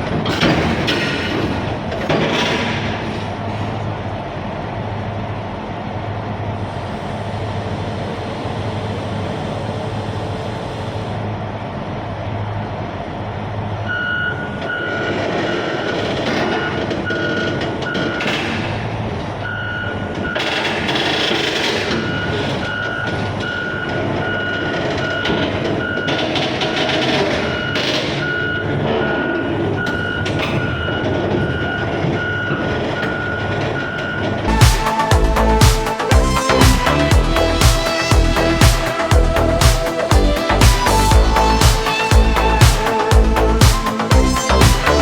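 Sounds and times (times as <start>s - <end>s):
heavy machinery running: 0.0s - 45.0s
backup alarm beeping: 13.9s - 15.7s, 29.4s - 45.0s.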